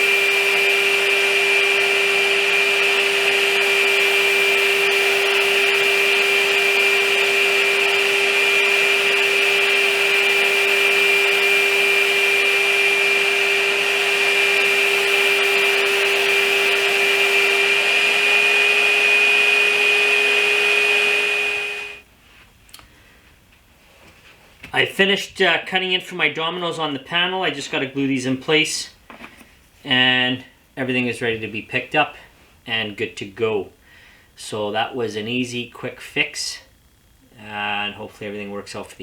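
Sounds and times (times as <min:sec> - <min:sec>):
dust extraction: 0:00.0 - 0:22.0
joiner cutting with steady whine: 0:00.0 - 0:22.0.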